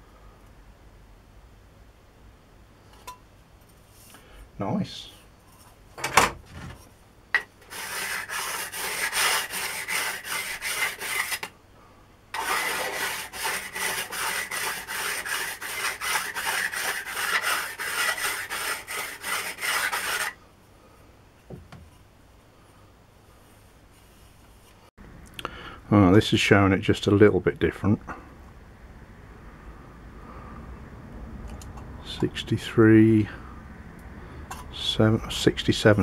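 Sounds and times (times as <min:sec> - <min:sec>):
file rasping on steel: 0:07.6 - 0:11.5, 0:12.4 - 0:20.4.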